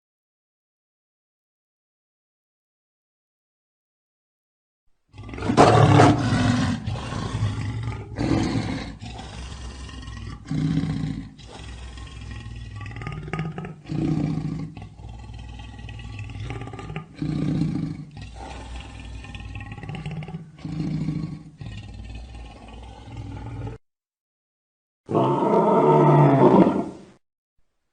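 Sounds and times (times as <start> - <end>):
lion roaring: 5.1 - 23.8, 25.1 - 27.1.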